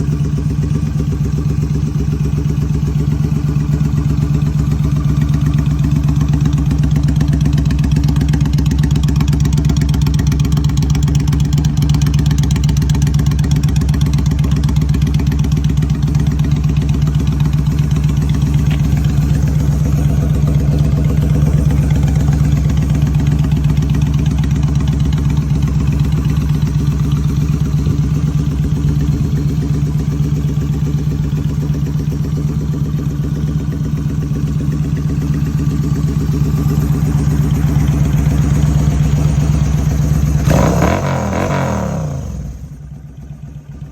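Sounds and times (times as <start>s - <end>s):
motorcycle engine idling: 0.0s - 43.9s.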